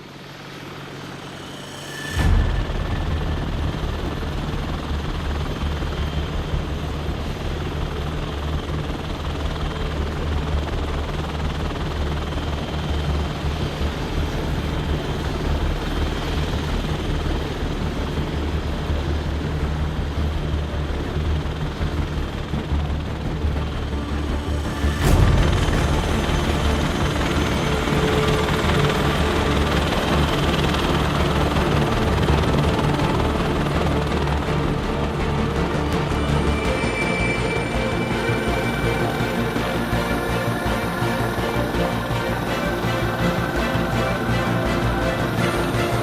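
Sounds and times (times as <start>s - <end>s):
helicopter rotor and engine: 0.0s - 46.0s.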